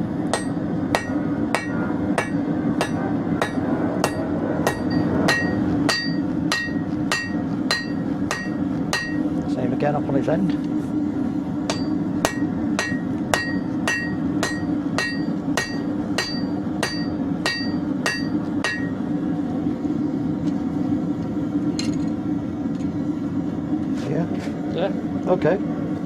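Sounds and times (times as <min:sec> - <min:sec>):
steady low hum: 0:00.0 - 0:26.0
hammer striking steel on anvil: 0:00.3 - 0:09.3, 0:11.7 - 0:19.0.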